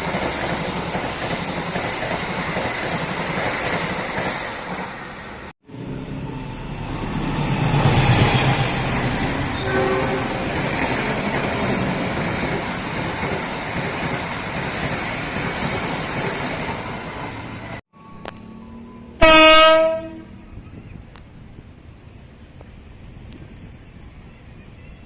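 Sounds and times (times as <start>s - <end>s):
train wheels rumbling on rails: 0.0s - 19.2s.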